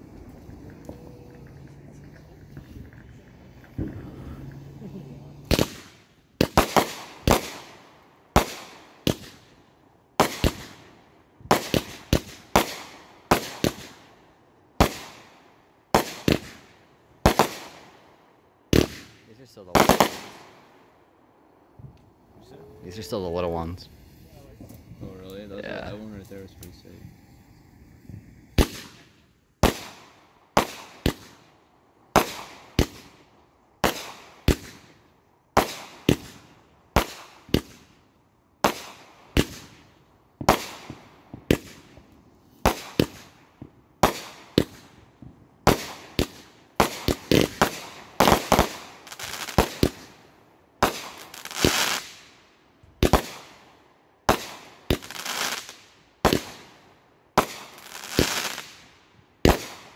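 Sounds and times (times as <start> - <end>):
fireworks bangs: 0.0 - 9.5, 10.2 - 14.1, 14.8 - 18.0, 18.7 - 20.8, 21.8 - 31.5, 32.1 - 38.0, 38.6 - 52.3, 53.0 - 59.9
fireworks crackling: 0.0 - 20.9, 21.7 - 59.9.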